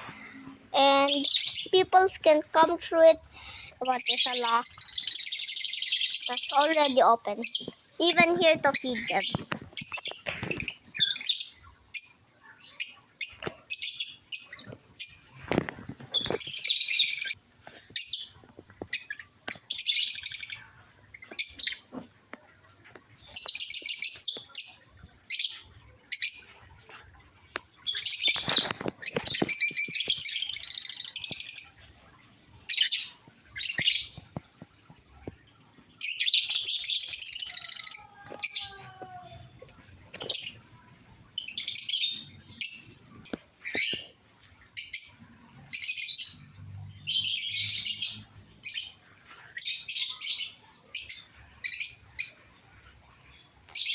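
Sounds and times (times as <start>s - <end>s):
birds chattering shrilly: 0.8s - 15.6s.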